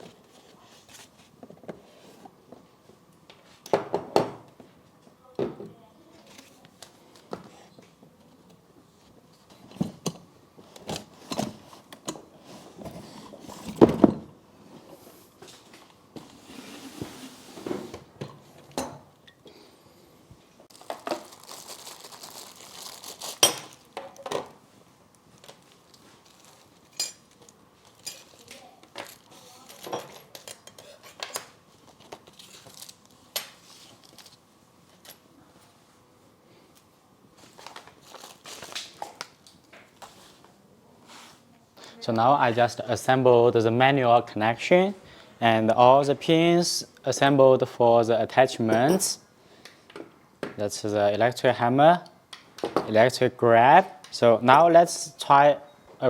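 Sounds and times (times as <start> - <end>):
packaging rustling: 20.7 - 23.9, 25.4 - 28.5, 37.4 - 39.4.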